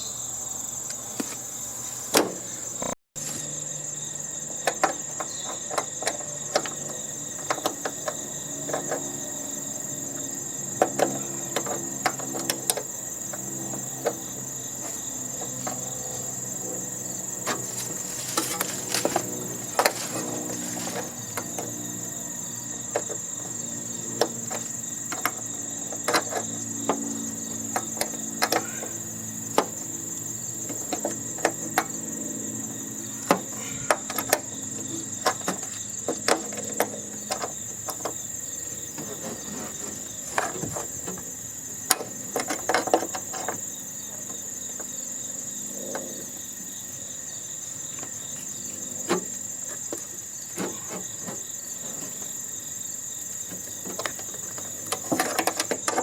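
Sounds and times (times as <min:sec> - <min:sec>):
insects chirring: 0:00.0 - 0:56.0
hand tools clanking on metal: 0:17.4 - 0:21.8.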